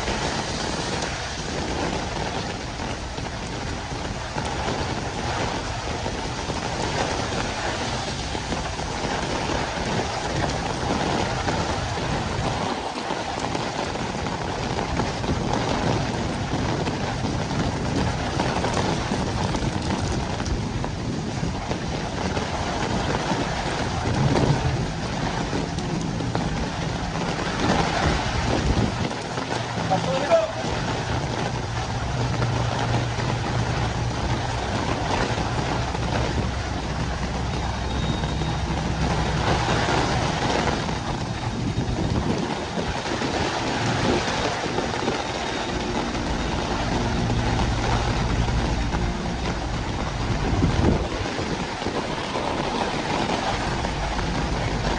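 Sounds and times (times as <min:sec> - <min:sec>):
heavy rain on street: 0:00.0 - 0:54.9
low rumble: 0:00.0 - 0:54.9
vehicle engine humming: 0:22.6 - 0:54.9.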